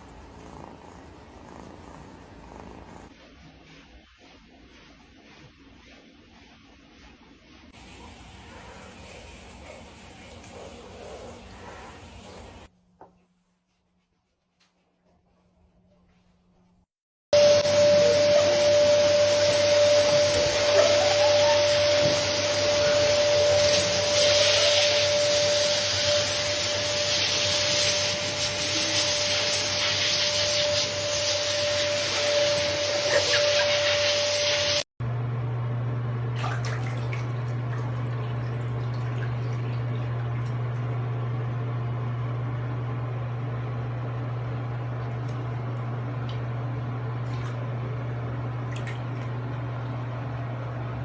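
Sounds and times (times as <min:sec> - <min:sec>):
water running into a bath: 0:07.8 - 0:12.7, 0:17.6 - 0:34.9, 0:36.3 - 0:41.0.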